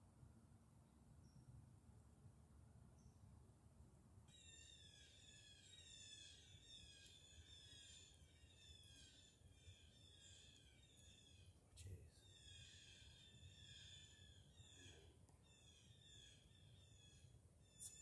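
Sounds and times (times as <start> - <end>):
faint wild bird calls: 4.3 - 18.0.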